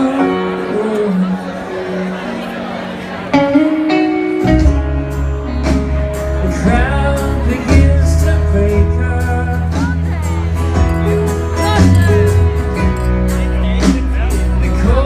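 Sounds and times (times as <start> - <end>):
acoustic guitar strumming: 2.9 - 15.0
person singing: 4.4 - 12.7, 13.8 - 15.0
deep bass line: 4.5 - 15.0.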